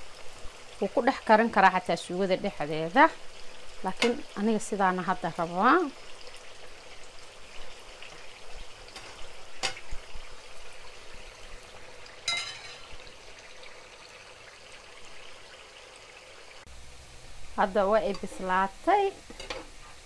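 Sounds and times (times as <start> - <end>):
food sizzling in hot oil: 0.0 - 20.0
spatula stirring in pan: 6.5 - 10.1, 18.0 - 20.0.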